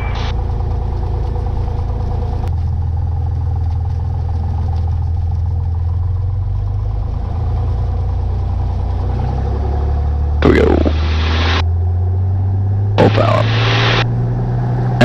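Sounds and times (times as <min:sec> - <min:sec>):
propeller plane engine idling: 0:00.0 - 0:11.6.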